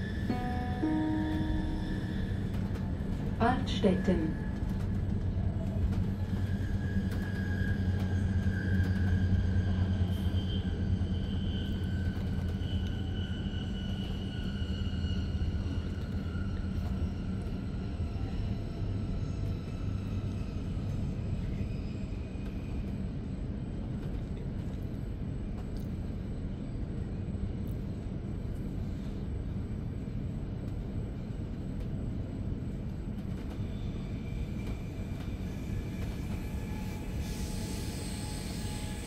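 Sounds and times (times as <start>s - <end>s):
train interior low rumble: 0.0s - 39.0s
faint tones: 0.2s - 2.9s.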